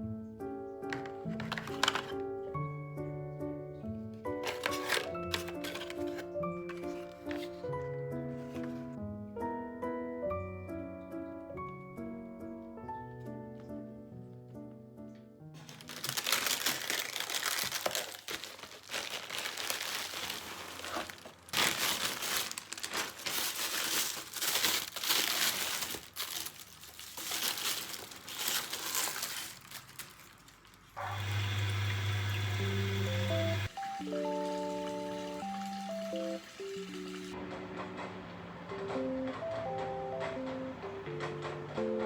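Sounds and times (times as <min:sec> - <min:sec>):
piano music: 0:00.0 - 0:30.2, 0:31.0 - 0:42.0
crinkling handling noise: 0:00.8 - 0:02.6, 0:04.2 - 0:09.0, 0:15.5 - 0:31.0.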